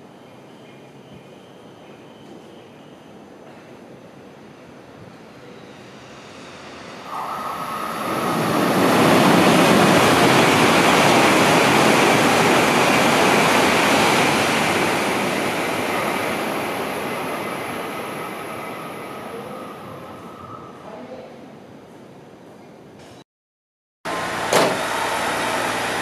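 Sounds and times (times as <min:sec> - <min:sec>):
train rushing past: 0:04.2 - 0:21.2, 0:24.1 - 0:26.0.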